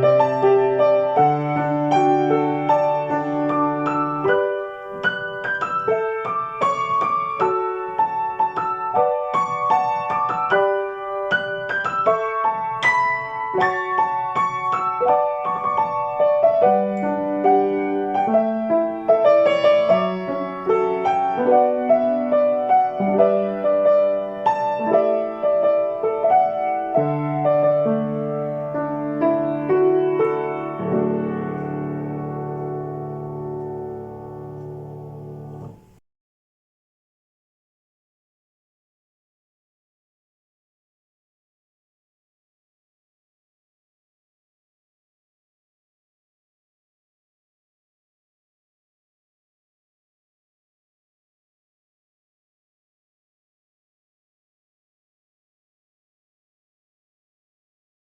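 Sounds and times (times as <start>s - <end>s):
gentle solo piano: 0.0s - 36.0s.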